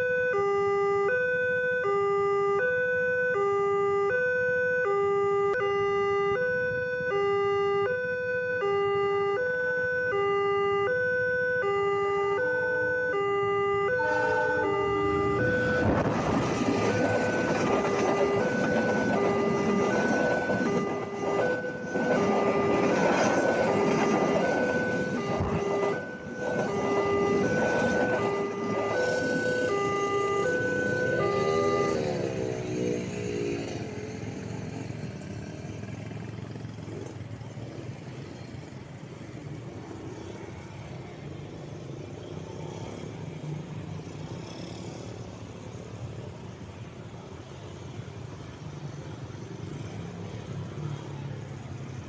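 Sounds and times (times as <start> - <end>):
level crossing two-tone alarm: 0.0 - 16.0, 16.6 - 32.3
passing train rumbling: 14.0 - 52.0.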